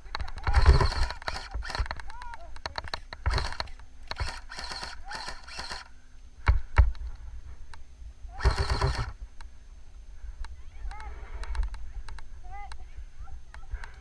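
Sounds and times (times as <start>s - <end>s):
sharp clicks: 0.1s - 7.0s, 8.4s - 9.5s, 10.4s - 12.8s.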